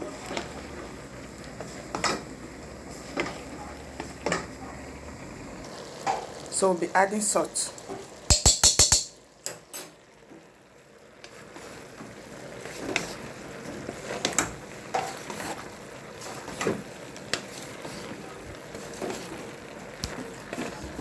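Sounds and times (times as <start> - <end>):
vegetables sizzling: 0.0 - 21.0
metal utensil clicking on pan: 8.3 - 9.9
utensil scraping pan: 14.0 - 18.2.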